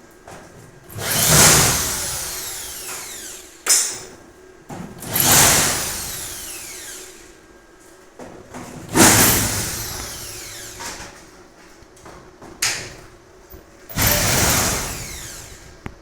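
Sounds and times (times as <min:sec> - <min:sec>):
electric drill whining: 0:00.9 - 0:03.8, 0:05.0 - 0:07.3, 0:09.0 - 0:11.1, 0:13.9 - 0:15.9.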